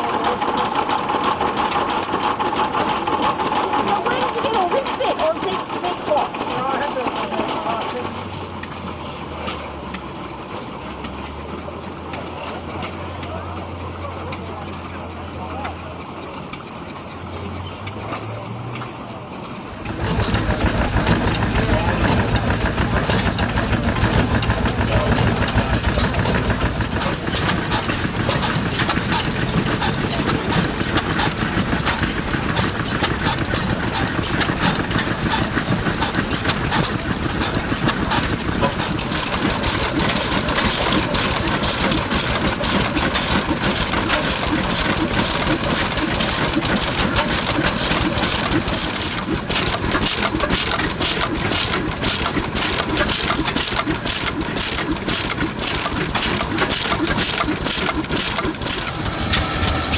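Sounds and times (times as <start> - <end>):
old engines running: 0.0 - 59.9
sharp rapid clicks: 19.8 - 59.9.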